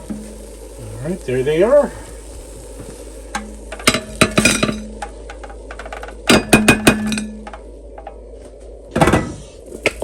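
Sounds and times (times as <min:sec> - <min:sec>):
kitchenware clinking: 0:03.4 - 0:05.0.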